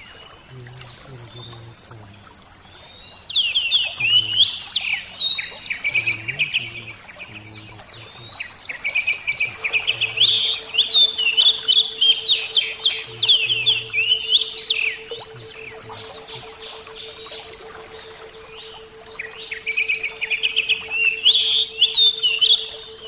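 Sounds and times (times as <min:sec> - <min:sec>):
bird singing: 0:00.0 - 0:23.0.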